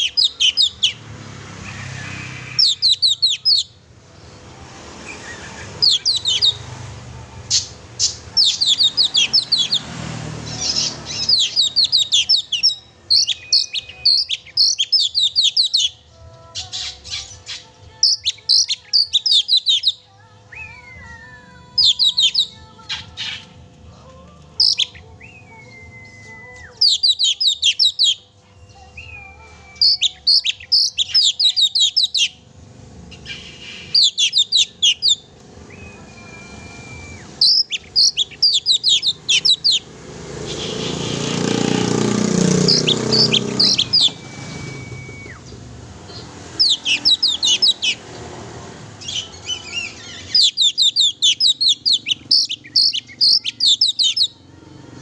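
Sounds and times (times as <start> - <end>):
bird chattering song: 0.0 - 1.0, 1.7 - 3.8, 5.0 - 23.7, 24.6 - 32.5, 33.1 - 54.5
bird long whistles: 33.3 - 39.8, 42.7 - 45.6.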